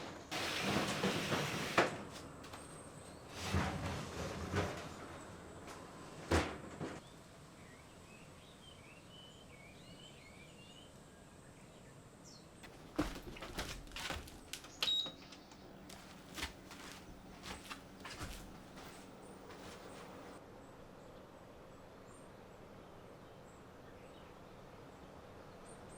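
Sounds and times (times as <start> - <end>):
objects knocking and clattering: 12.6 - 16.0.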